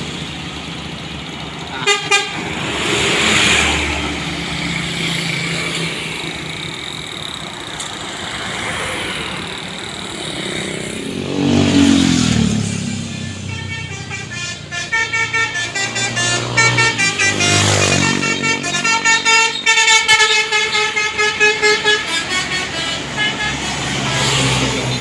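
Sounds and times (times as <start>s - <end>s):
heavy vehicle engine passing: 0.0s - 19.4s, 22.3s - 25.0s
passing road traffic: 0.0s - 25.0s
bus multi-tone horn toots: 1.7s - 2.8s, 13.0s - 25.0s.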